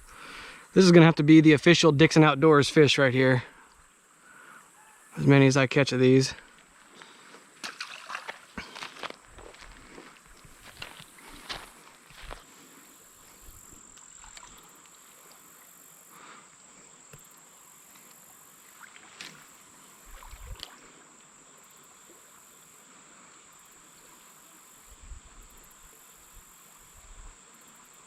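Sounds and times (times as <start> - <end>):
insect steady high trill: 0.0 - 6.8, 9.2 - 28.0
insects pulsing chorus: 8.1 - 28.0.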